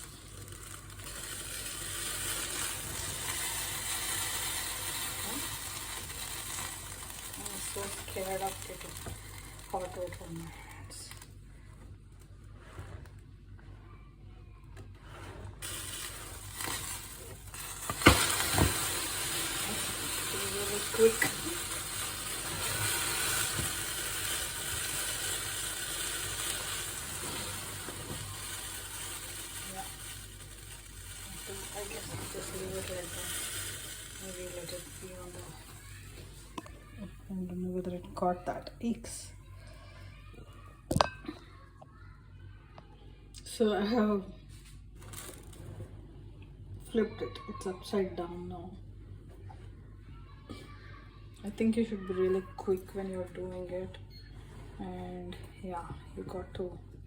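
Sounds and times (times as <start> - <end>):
coffee pot sizzling hiss: 0.0 - 11.5, 15.2 - 39.3.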